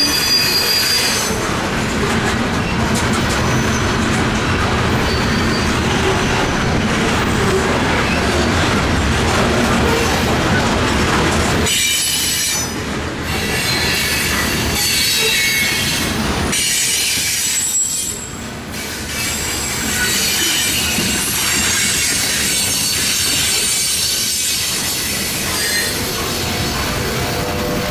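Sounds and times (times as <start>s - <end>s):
high-pitched wheel squeal: 0.0s - 1.4s, 5.0s - 5.8s, 22.4s - 26.4s
freight train rumbling: 0.0s - 27.9s.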